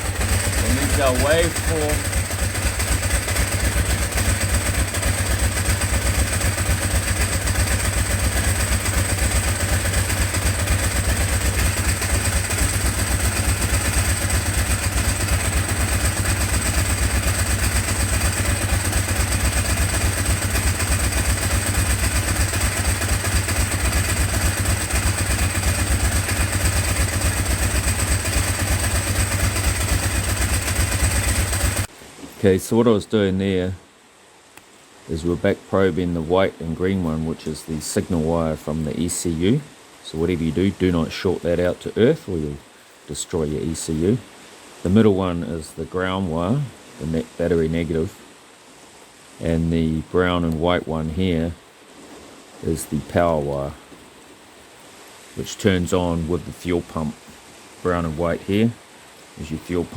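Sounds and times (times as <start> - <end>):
motorcycle engine idling: 0.0 - 31.9.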